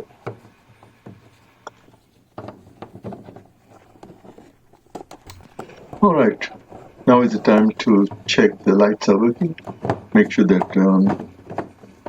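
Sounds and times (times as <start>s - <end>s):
plastic clicks and knocks: 9.4s - 12.0s.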